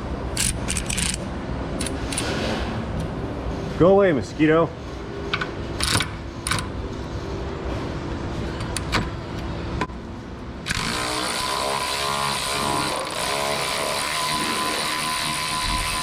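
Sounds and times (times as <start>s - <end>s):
steady machine noise: 4.8s - 16.0s.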